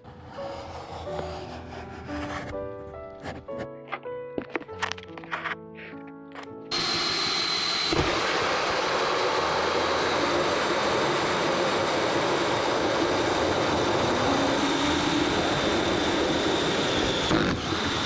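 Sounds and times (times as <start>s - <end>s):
electric power tool rasping: 0.0s - 3.7s.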